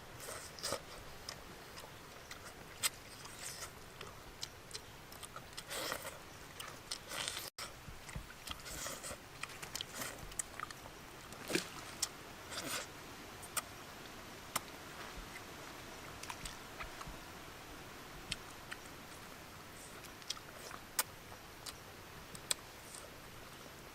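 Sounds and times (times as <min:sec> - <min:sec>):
person chewing: 0:00.2 - 0:10.8, 0:14.5 - 0:14.7, 0:19.8 - 0:23.1.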